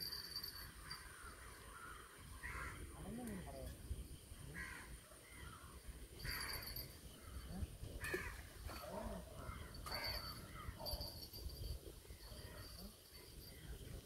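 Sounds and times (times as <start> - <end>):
birds making harsh calls: 4.5 - 11.0.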